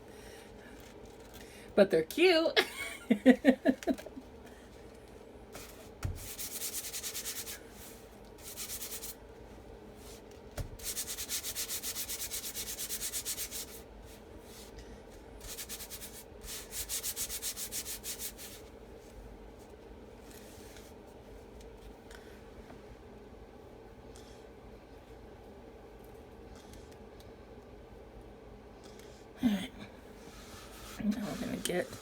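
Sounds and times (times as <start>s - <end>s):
squeegee scraping: 30.3s - 32.0s.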